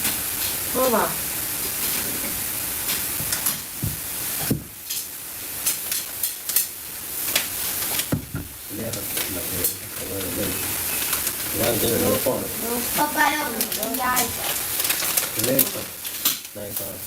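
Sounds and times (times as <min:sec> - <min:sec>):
steady hiss: 0:00.0 - 0:17.0
dull knocks: 0:03.8 - 0:04.8, 0:08.1 - 0:08.6.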